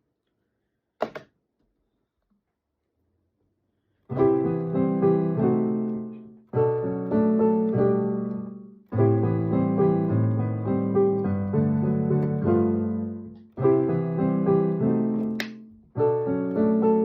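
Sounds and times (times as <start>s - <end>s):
piano chords: 4.1s - 17.0s.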